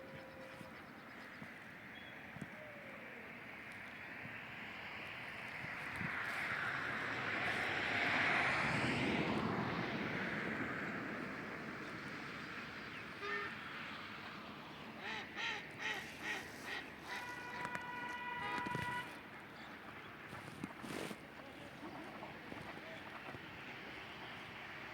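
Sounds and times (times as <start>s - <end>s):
geese honking: 15.0s - 19.1s.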